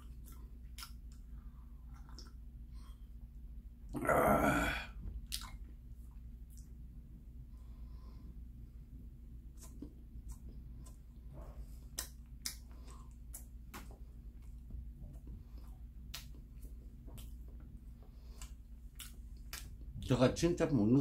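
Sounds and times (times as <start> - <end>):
person chewing bread: 0.0 - 3.3, 5.1 - 6.9, 9.3 - 20.1
steady low hum: 0.0 - 21.0.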